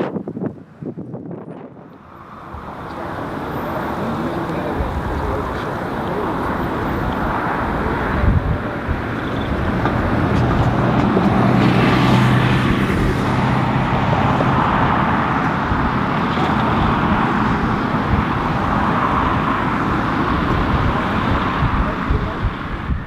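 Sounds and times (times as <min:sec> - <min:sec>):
strong wind on microphone: 0:00.0 - 0:23.0
jet airliner noise: 0:01.5 - 0:23.0.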